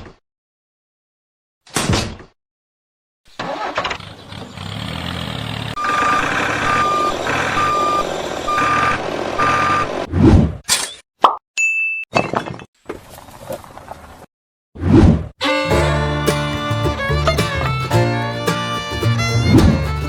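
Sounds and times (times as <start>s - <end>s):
truck engine running: 3.5s - 9.4s, 15.4s - 20.0s
reversing alarm beeping: 5.8s - 10.0s.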